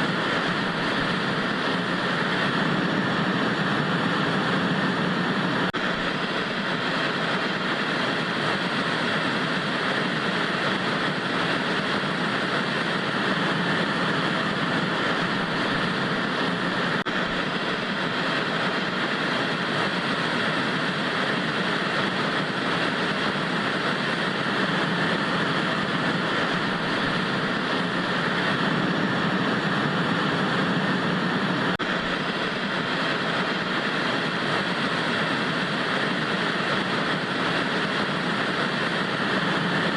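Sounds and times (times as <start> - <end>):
tv static hiss: 0.0 - 39.9.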